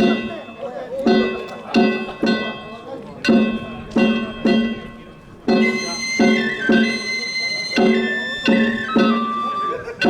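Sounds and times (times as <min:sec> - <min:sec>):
drum beats: 0:03.3 - 0:10.0
bamboo flute melody: 0:05.0 - 0:10.0.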